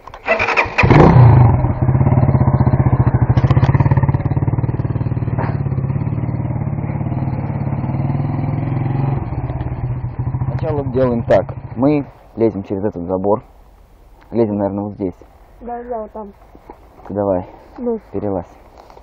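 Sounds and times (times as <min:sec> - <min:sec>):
motorcycle engine idling: 0:00.4 - 0:12.8.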